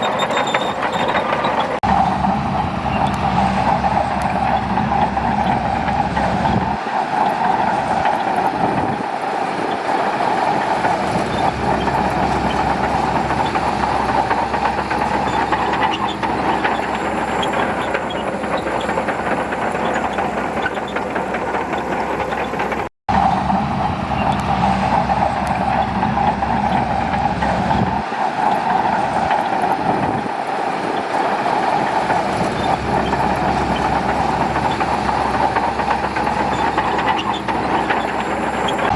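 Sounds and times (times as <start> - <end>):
bulldozer diesel engine running: 0.0 - 38.9
steel tracks rattling and clanking: 0.0 - 38.9.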